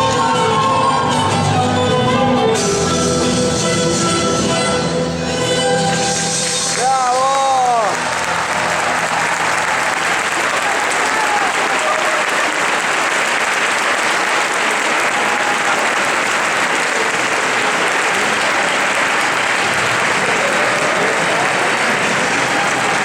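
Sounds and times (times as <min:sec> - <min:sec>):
audience applauding: 0:06.3 - 0:23.0.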